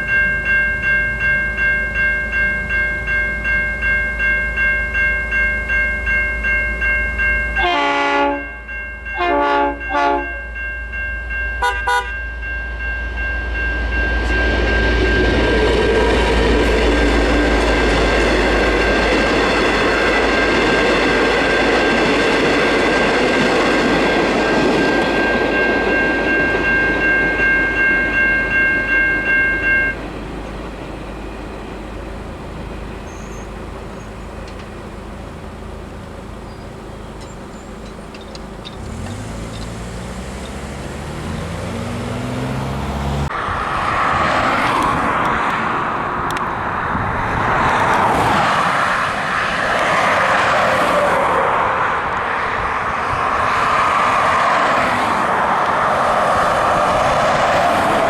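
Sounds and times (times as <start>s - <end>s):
level crossing bells ringing: 0.0s - 30.0s
train rumbling through crossing: 0.0s - 58.0s
train horn blasts: 7.6s - 10.6s, 11.6s - 12.2s.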